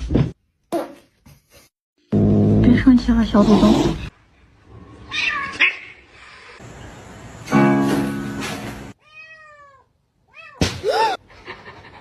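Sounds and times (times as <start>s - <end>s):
cat meowing: 9.0s - 10.6s.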